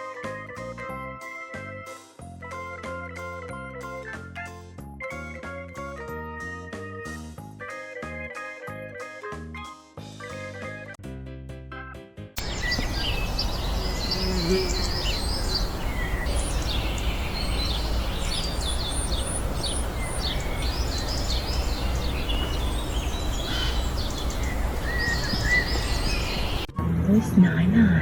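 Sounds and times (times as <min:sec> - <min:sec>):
small birds chirping: 0:12.4 - 0:26.7.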